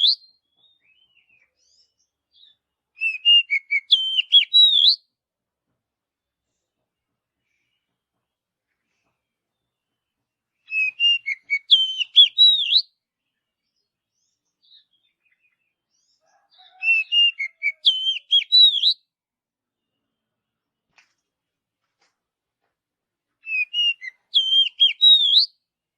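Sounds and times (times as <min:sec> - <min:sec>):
bird whistling song: 0:00.0 - 0:05.0, 0:10.6 - 0:13.0, 0:16.6 - 0:19.0, 0:23.4 - 0:25.6.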